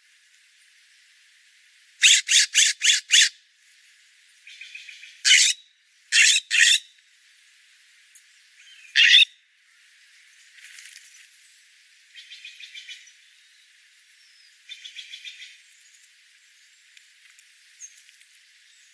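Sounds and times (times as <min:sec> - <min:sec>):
bird giving harsh calls: 0:02.0 - 0:03.3, 0:05.3 - 0:06.8, 0:09.0 - 0:09.3
faint bird chatter: 0:02.0 - 0:03.3, 0:04.4 - 0:06.9, 0:08.5 - 0:09.3.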